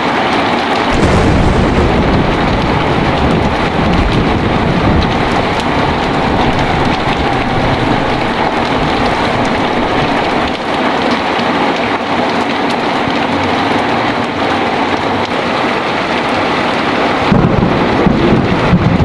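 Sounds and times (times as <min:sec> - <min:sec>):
heavy rain falling: 0:00.0 - 0:19.0
thunder rumbling: 0:00.8 - 0:11.4, 0:16.2 - 0:19.0.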